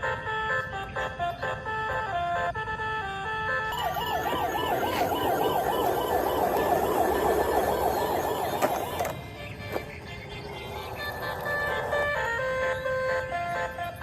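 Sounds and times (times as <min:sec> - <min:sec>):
warbling toy siren: 0:02.8 - 0:09.2, 0:10.5 - 0:14.0
electronic beeping tune: 0:03.7 - 0:09.1.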